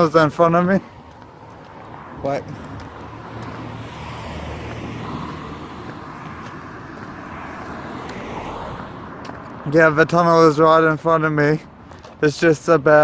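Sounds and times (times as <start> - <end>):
motor vehicle passing: 0.0 - 10.0.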